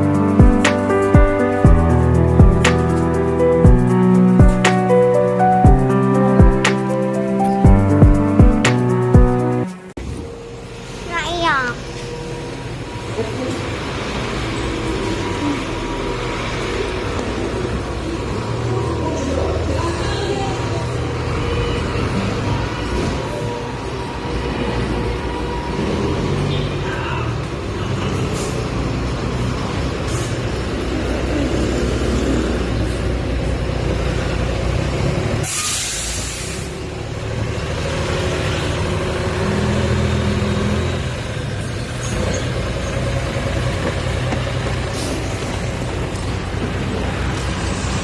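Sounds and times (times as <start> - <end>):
vehicle engine running: 0.0 - 9.8, 36.9 - 48.0
loud burst of hissing: 35.4 - 36.8.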